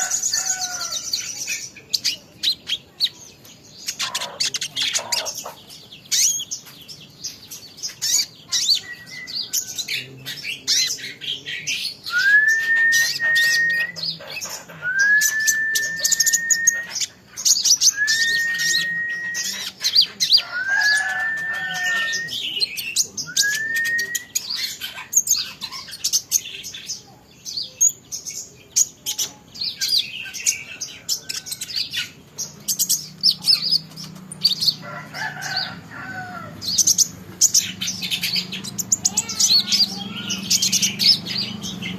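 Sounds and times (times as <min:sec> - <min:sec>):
songbird chirping and twittering: 0:00.0 - 0:41.9
bird whistles rising: 0:12.1 - 0:14.1, 0:14.8 - 0:17.1, 0:17.7 - 0:19.7, 0:23.3 - 0:24.4.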